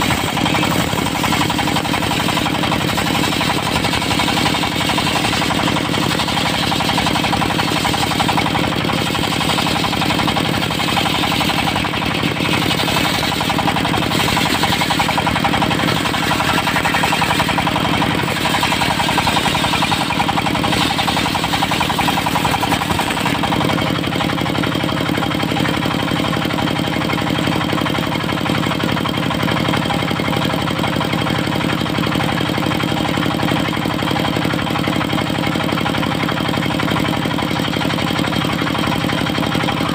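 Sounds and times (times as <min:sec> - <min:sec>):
saw blade hissing through wood: 0:00.0 - 0:23.7
diesel engine running: 0:00.0 - 0:39.9.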